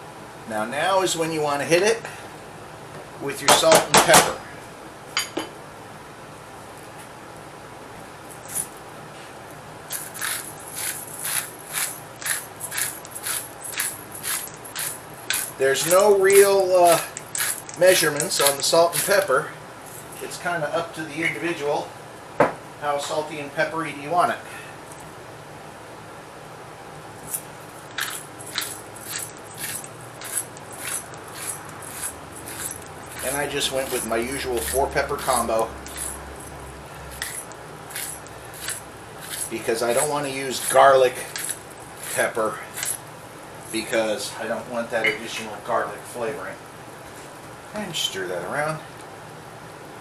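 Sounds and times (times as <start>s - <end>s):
pepper grinder grinding: 9.9s - 20.2s, 27.2s - 43.1s.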